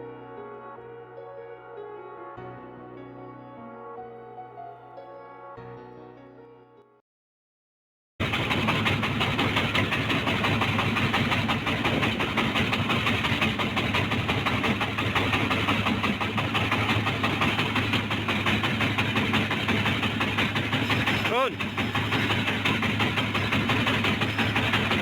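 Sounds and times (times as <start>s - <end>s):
boat engine running steadily: 8.2s - 25.0s.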